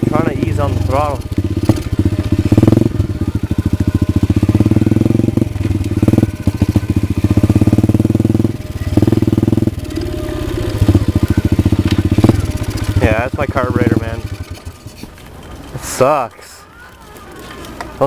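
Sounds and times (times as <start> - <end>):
motorcycle engine running unevenly: 0.0 - 18.0.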